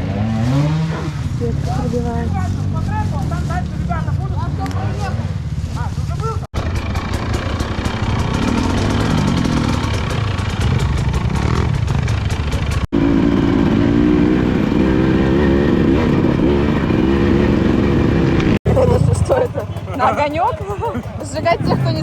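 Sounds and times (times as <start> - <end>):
engine running at steady revs: 0.0 - 22.0
motorcycle engine revving: 0.0 - 22.0
clatter: 6.6 - 14.6.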